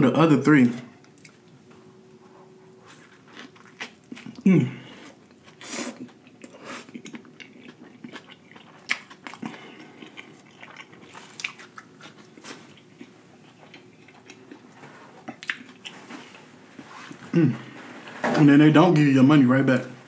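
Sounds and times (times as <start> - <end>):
chewing a burger: 2.9 - 16.5
person humming mm: 4.4 - 5.0, 17.3 - 17.7.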